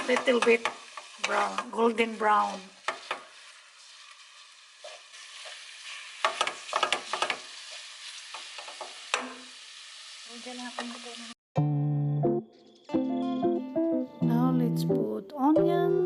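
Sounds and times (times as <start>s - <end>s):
utensil scraping a pan: 0.0s - 9.5s
meat sizzling in a pan: 0.0s - 11.4s.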